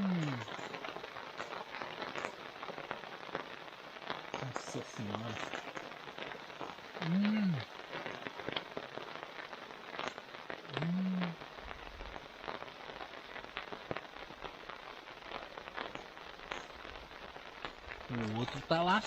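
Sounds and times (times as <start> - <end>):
person humming: 0.0 - 0.4, 7.0 - 7.6, 10.7 - 11.4
rain with drops ticking: 0.0 - 19.0.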